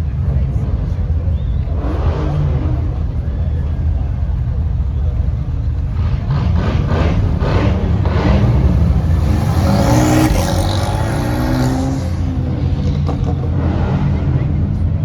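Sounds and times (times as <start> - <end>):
car engines rumbling: 0.0 - 15.0
engine revving: 5.3 - 14.6.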